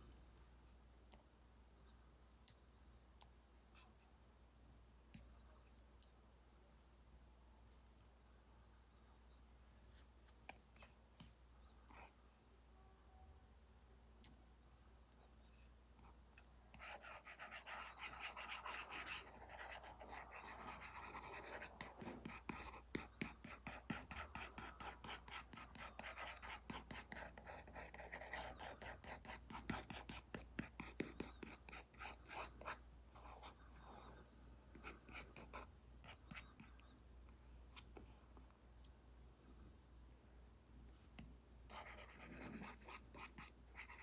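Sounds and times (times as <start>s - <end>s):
stylus scratching strokes: 16.8s - 33.6s.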